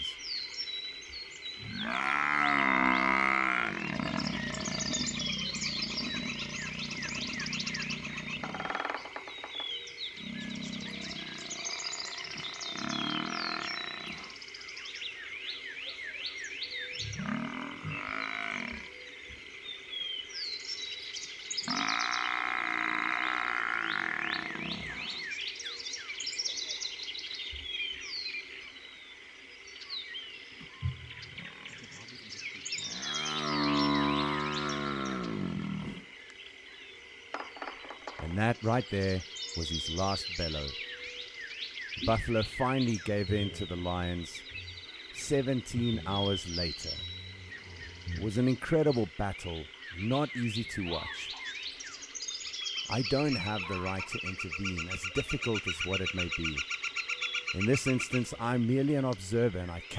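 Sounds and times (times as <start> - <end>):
frogs chirping: 0.0 - 59.9
buffalo bellowing: 1.6 - 8.9, 10.2 - 14.4, 21.6 - 25.3, 32.8 - 36.1.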